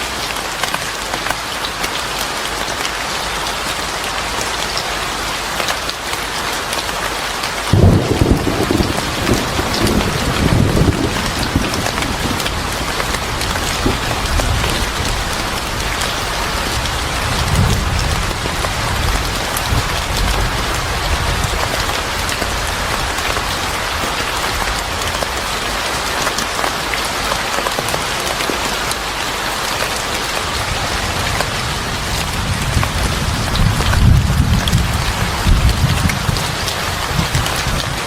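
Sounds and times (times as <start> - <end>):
heavy rain: 0.0 - 38.0
thunder rumbling: 7.7 - 23.4, 30.6 - 38.0.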